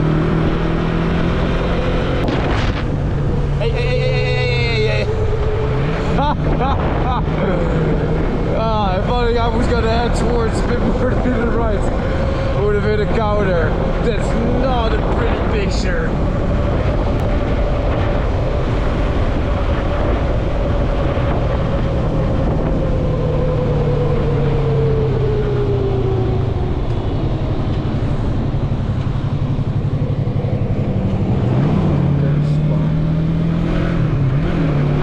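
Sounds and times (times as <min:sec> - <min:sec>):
wind noise on microphone: 0:00.0 - 0:35.0
motorcycle engine running: 0:27.1 - 0:35.0.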